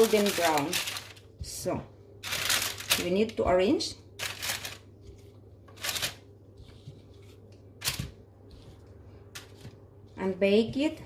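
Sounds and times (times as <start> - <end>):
soft rustling handling noises: 0.0 - 11.0.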